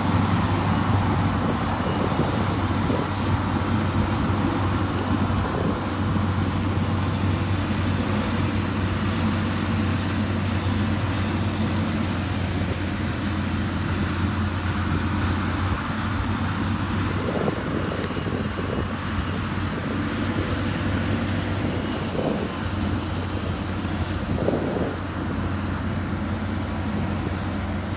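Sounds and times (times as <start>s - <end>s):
heavy diesel machinery running: 0.0s - 27.9s.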